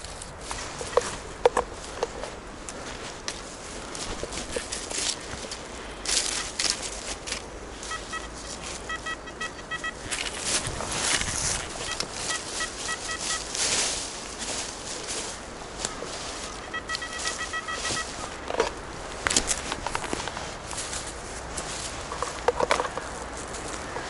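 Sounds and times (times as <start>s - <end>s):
leaves and soil rustling: 0.0s - 24.0s
metal detector beeping: 0.8s - 1.2s, 6.0s - 14.0s, 15.9s - 18.8s.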